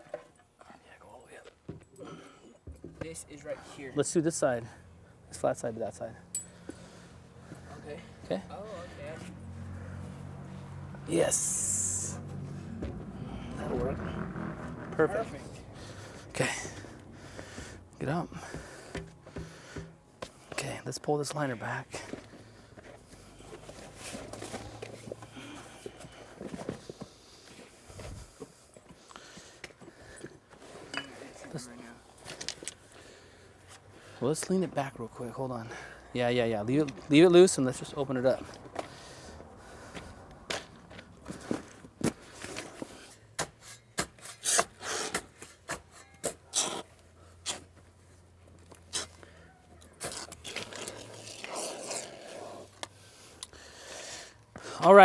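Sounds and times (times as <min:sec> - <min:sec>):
footsteps: 0:07.4 - 0:20.4.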